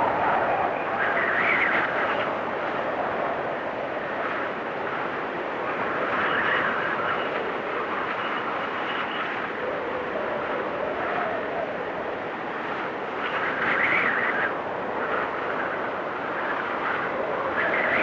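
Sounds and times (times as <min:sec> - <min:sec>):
blizzard wind gusting: 0:00.0 - 0:18.0.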